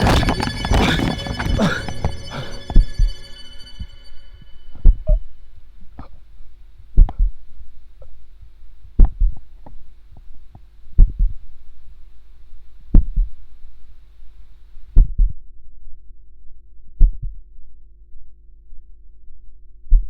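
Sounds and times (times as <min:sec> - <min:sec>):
heartbeat thumps: 0:00.0 - 0:03.9, 0:04.8 - 0:05.3, 0:06.8 - 0:08.2, 0:08.8 - 0:11.6, 0:12.9 - 0:13.5, 0:14.9 - 0:15.4.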